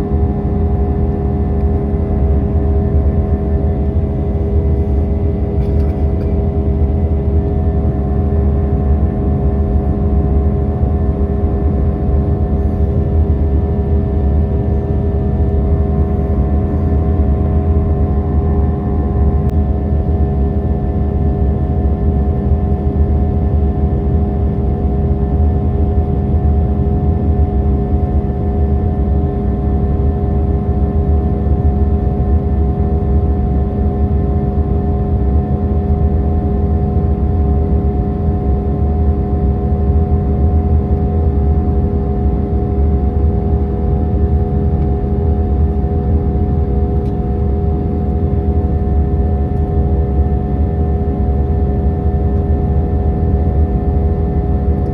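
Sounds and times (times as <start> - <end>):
airplane cabin engine and air noise: 0.0 - 54.9
steady tonal hum: 14.3 - 19.5.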